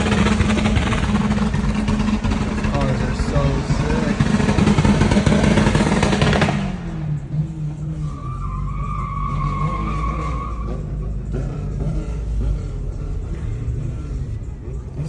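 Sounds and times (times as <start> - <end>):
car engine revving: 0.0 - 15.0
tyre squeal: 7.8 - 12.7.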